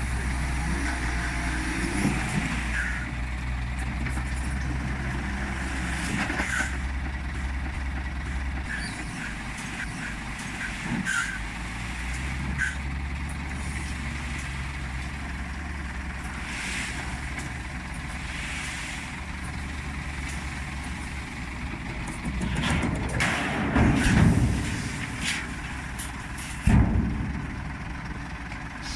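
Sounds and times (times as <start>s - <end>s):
truck diesel engine running: 0.0s - 28.9s.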